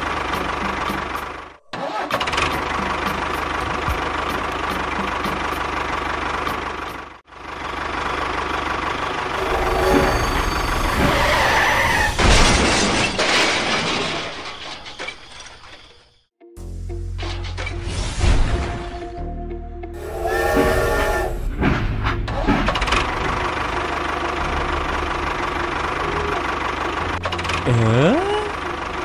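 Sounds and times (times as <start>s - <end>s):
tractor engine running: 0.0s - 12.1s, 20.0s - 29.0s
loud toy crash: 11.0s - 16.0s.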